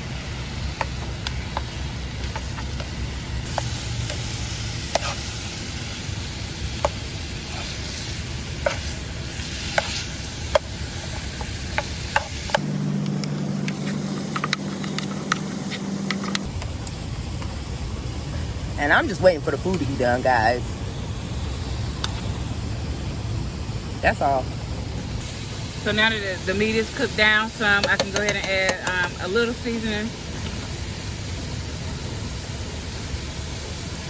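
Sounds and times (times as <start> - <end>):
beef sizzling in a pan: 0.0 - 12.6, 25.2 - 34.0
low hum: 0.0 - 34.0
utensil scraping a pan: 4.9 - 5.4.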